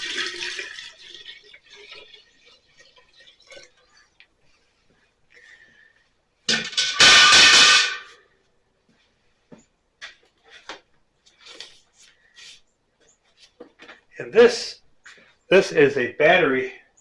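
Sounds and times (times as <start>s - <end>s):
water rushing pour: 0.0s - 4.2s.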